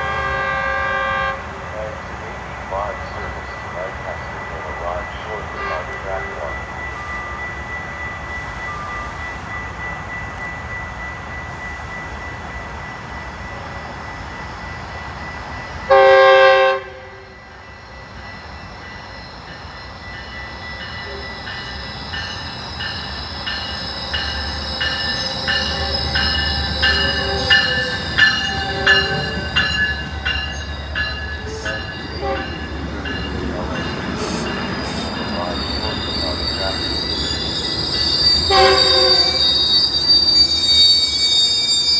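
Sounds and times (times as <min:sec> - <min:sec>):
train horn blast: 0:00.0 - 0:01.7, 0:05.5 - 0:06.4, 0:15.9 - 0:17.3, 0:25.0 - 0:30.6, 0:31.4 - 0:32.8, 0:38.4 - 0:39.6
train wheel squeal: 0:02.7 - 0:41.9.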